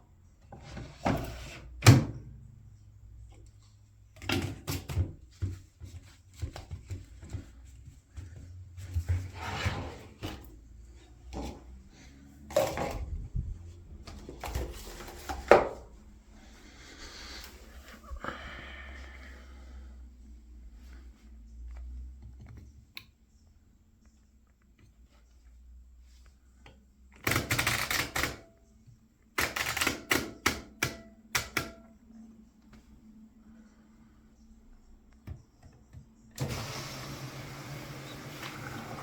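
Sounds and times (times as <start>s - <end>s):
hands working at washing machine: 3.2s - 16.0s.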